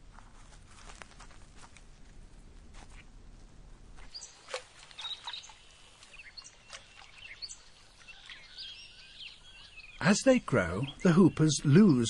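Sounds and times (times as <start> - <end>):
birds chirping: 4.0 - 12.0.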